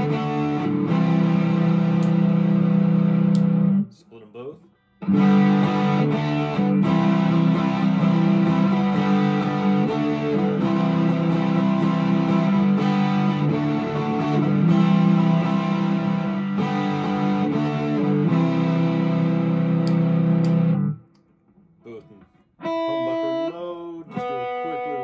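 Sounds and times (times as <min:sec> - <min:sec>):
electric guitar chords: 0:00.0 - 0:03.9, 0:05.0 - 0:25.0.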